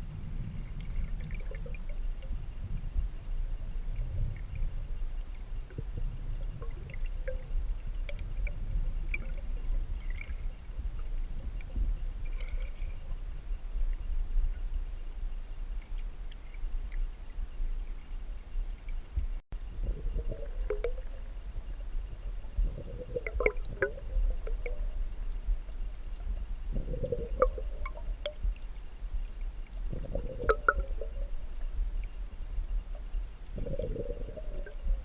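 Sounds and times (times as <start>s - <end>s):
water splashing and gurgling: 0.0s - 14.1s, 19.6s - 35.0s
low rumble: 0.0s - 35.0s.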